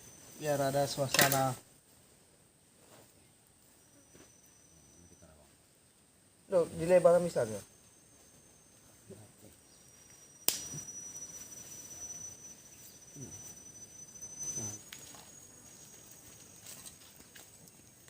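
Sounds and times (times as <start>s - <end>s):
high-pitched insect call: 0.0s - 1.7s, 3.6s - 5.5s, 6.5s - 18.0s
sharp click: 10.5s - 10.8s.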